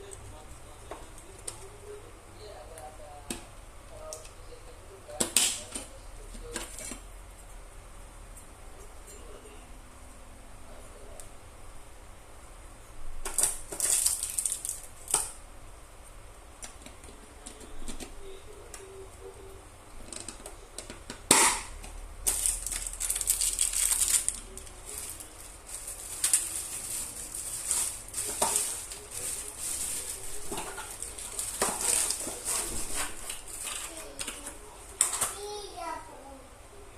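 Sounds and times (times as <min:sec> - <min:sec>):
packaging rustling: 0:13.2 - 0:15.2, 0:22.2 - 0:34.5.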